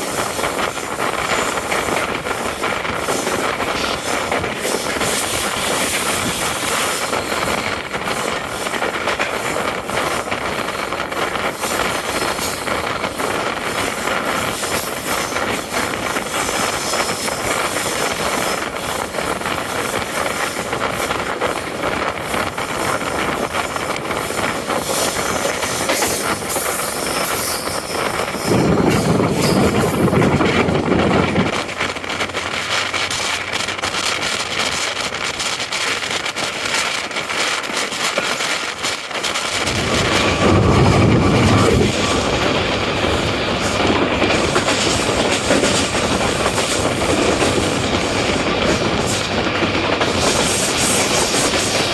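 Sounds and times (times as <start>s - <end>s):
train wheels on rails: 0.0s - 51.9s
low rumble: 28.5s - 31.7s, 39.6s - 43.2s.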